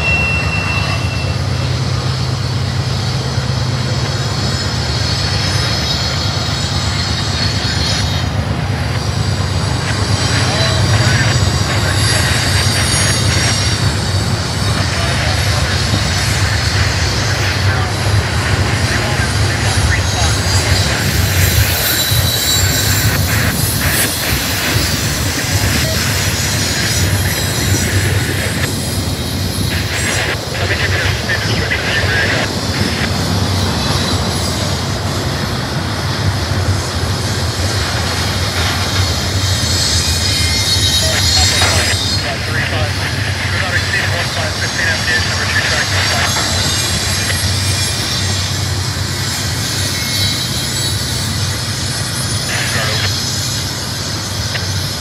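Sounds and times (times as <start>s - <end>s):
high-pitched wheel squeal: 0.0s - 2.8s, 19.7s - 29.8s
freight train wheels rumbling: 0.0s - 55.0s.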